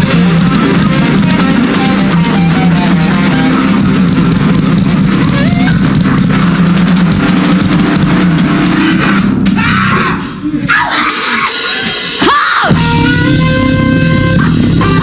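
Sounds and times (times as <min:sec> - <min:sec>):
electric guitars: 0:00.0 - 0:15.0
rapid drum and cymbal hits: 0:00.0 - 0:15.0.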